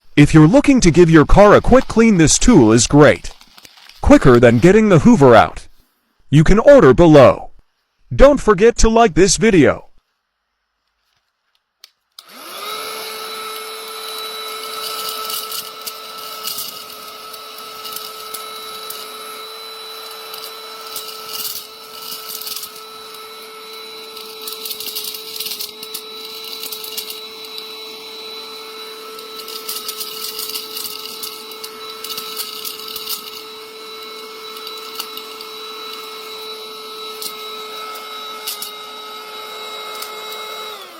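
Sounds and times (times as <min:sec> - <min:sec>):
crackling and rattling: 0:00.9 - 0:04.7, 0:20.3 - 0:27.8, 0:29.1 - 0:38.9
small vacuum motor whine: 0:12.2 - 0:40.9.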